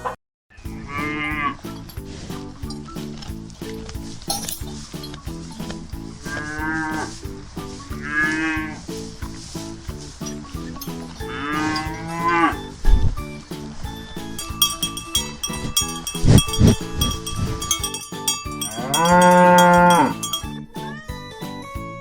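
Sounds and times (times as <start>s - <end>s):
light background music: 0.6s - 22.0s
cow mooing: 11.4s - 12.6s, 18.6s - 20.3s.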